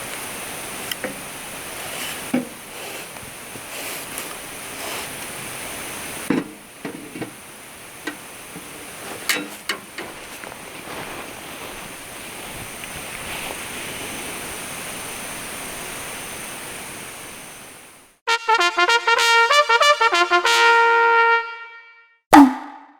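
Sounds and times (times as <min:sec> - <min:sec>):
rushing outdoor noise: 0:00.0 - 0:18.2.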